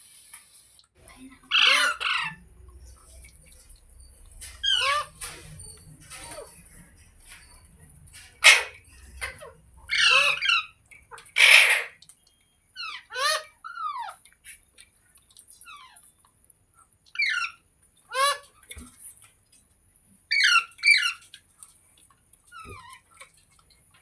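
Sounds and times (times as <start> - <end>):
parrot squawking: 1.5 - 2.5, 4.5 - 5.5, 8.4 - 12.0, 12.8 - 14.1.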